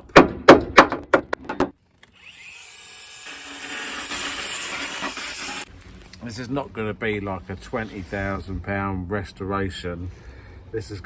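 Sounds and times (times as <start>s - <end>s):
power tool scouring metal: 2.3s - 5.7s.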